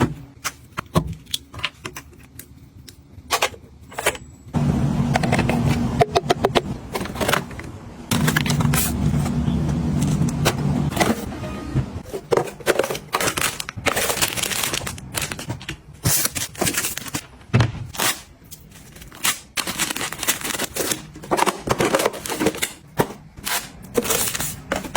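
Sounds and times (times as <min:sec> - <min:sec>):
packaging rustling and crinkling: 0:12.1 - 0:22.8, 0:23.4 - 0:24.9.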